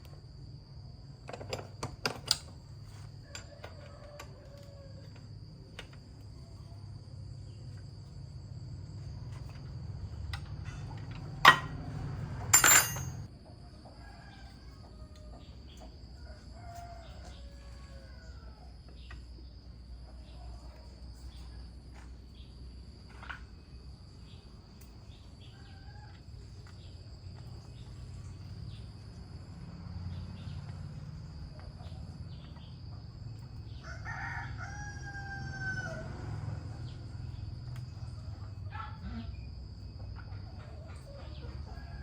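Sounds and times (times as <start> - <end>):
rooster crowing: 3.2 - 5.4, 13.9 - 18.8, 33.7 - 37.4.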